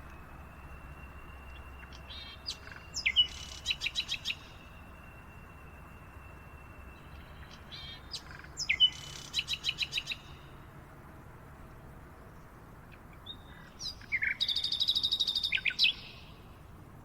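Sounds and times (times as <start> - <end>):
faint steady hiss: 0.0 - 17.0
birds singing: 1.4 - 4.8, 6.9 - 10.4, 13.2 - 16.3.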